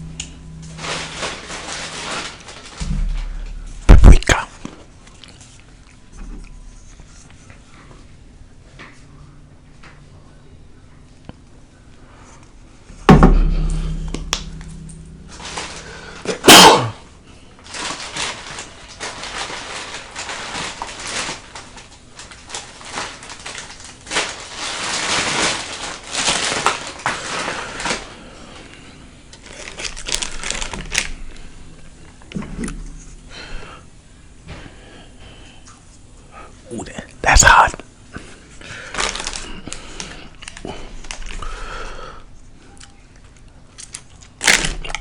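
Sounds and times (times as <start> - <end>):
short sharp loud sound: 0.0 - 4.4, 13.1 - 17.0
loud knock: 2.8 - 4.3, 13.1 - 16.8.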